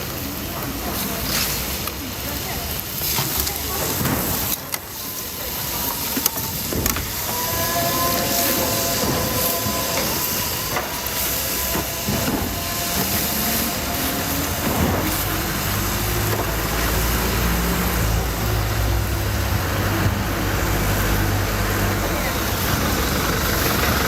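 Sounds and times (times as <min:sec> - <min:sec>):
loud hissing background noise: 0:00.0 - 0:24.0
low motor hum rising in pitch: 0:07.2 - 0:22.1.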